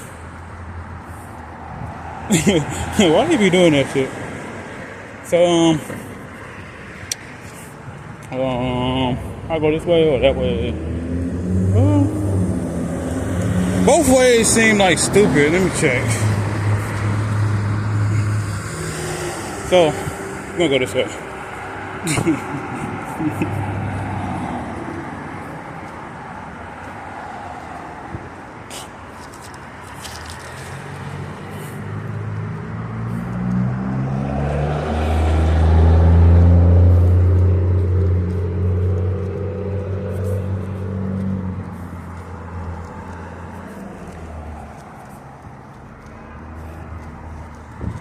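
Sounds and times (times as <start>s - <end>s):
car speeding up passing by: 10.1s - 22.0s, 23.0s - 25.8s, 30.8s - 45.4s.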